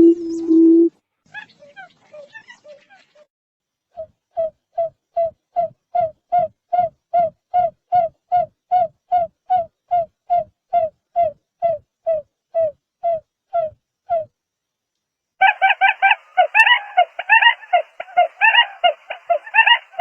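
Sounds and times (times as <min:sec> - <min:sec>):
bird hooting notes: 0:15.4 - 0:20.0.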